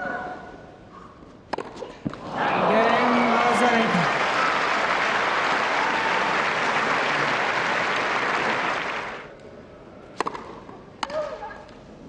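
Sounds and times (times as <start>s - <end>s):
crowd applauding: 2.3s - 9.3s.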